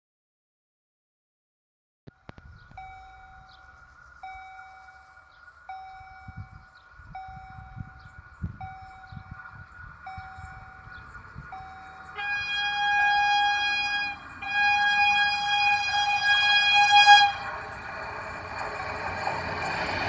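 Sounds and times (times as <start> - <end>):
level crossing warning chime: 2.8 - 8.0, 8.6 - 9.4, 10.0 - 15.7
train horn blasts: 11.6 - 17.9.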